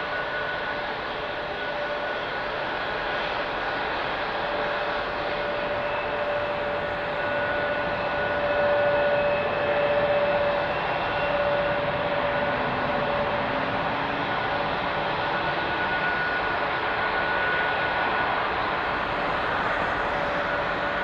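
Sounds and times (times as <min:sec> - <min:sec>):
jet engines running with whine: 0:00.0 - 0:21.0.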